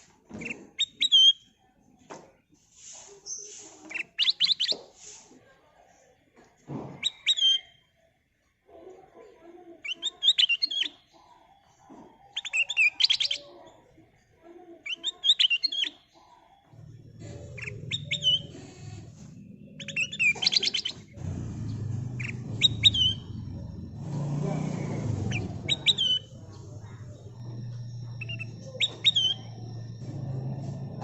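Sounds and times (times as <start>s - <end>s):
bulbul singing: 7.0s - 7.8s, 12.3s - 13.5s, 16.7s - 31.0s
low background rumble: 16.8s - 31.0s.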